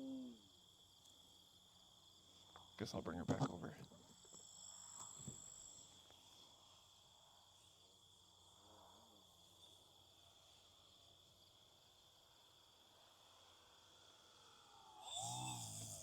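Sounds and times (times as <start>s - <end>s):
faint wavering hum: 0.0s - 0.6s
crickets trilling: 0.0s - 16.0s.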